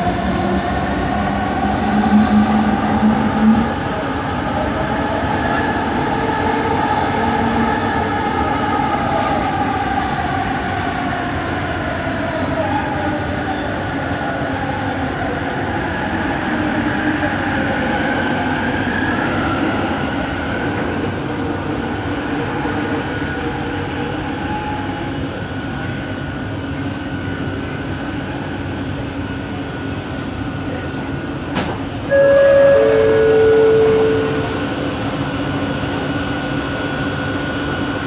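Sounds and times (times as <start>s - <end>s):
train rumble with whining motor: 0.0s - 38.0s
two-note chime: 32.1s - 34.6s.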